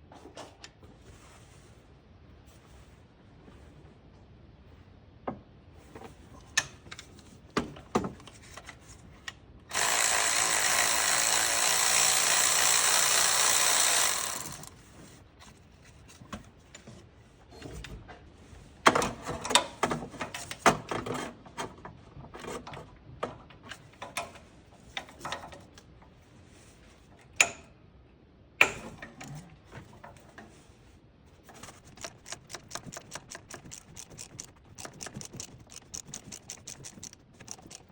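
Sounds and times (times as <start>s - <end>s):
power tool running: 9.7s - 14.7s
hand tool clicks and metal knocks: 31.7s - 37.9s.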